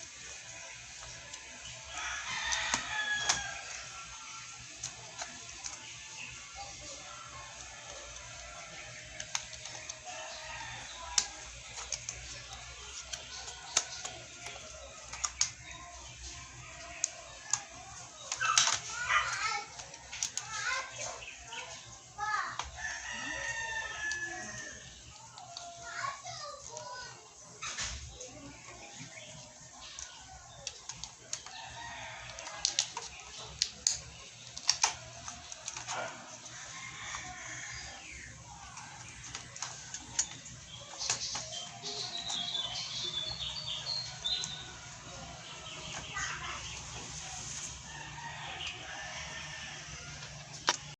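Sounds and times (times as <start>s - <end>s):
laptop keys clicking: 30.0s - 35.9s.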